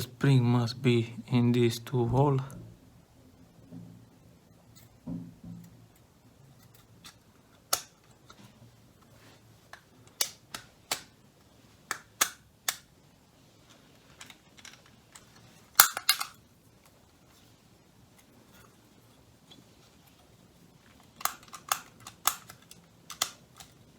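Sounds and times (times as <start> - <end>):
plastic parts clicking together: 6.0 - 9.1, 9.7 - 11.2, 11.9 - 12.9, 13.6 - 16.4, 20.9 - 23.9.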